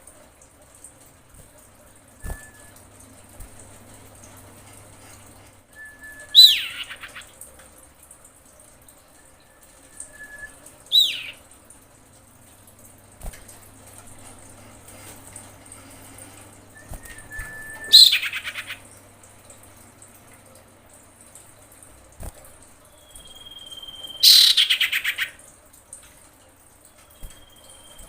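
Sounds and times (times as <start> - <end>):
bird whistled calls: 2.2 - 2.8, 5.8 - 7.2, 9.4 - 11.4, 16.8 - 18.8, 22.9 - 25.3, 27.0 - 28.0.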